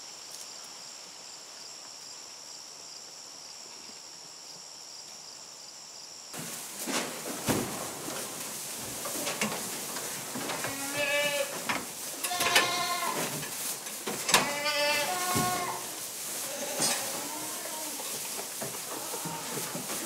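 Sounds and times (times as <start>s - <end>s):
knocks and clatter: 6.4s - 16.0s, 16.8s - 20.0s
livestock bleating: 10.6s - 11.6s, 12.2s - 13.3s, 14.2s - 18.1s, 18.9s - 19.8s.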